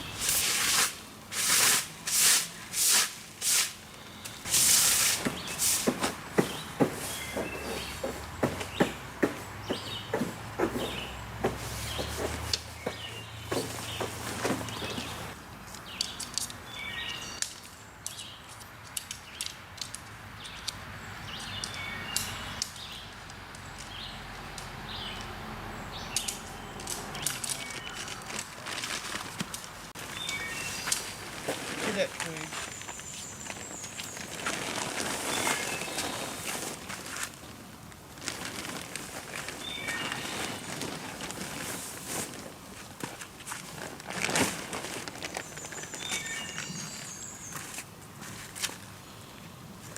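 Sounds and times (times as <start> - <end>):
outdoor background noise: 0.0 - 49.9
birds chirping: 3.9 - 18.6, 20.3 - 24.2, 24.8 - 28.6, 30.0 - 36.8, 39.5 - 41.8, 44.9 - 47.8
twigs and dry leaves crunching: 26.0 - 48.9.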